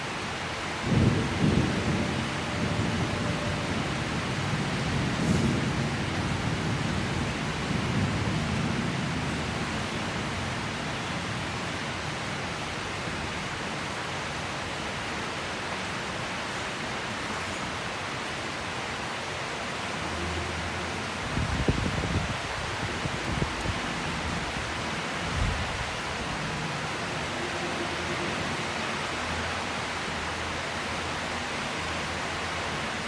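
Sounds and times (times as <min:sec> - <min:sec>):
steady rain hiss: 0:00.0 - 0:33.0
low thunder rumble: 0:00.8 - 0:11.5, 0:21.3 - 0:27.3.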